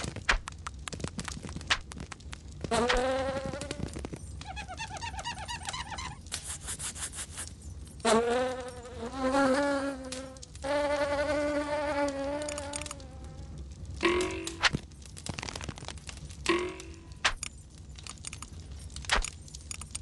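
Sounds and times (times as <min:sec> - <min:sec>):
crackly rustling: 0:00.0 - 0:20.0
cartoon twittering chirps: 0:04.4 - 0:06.2.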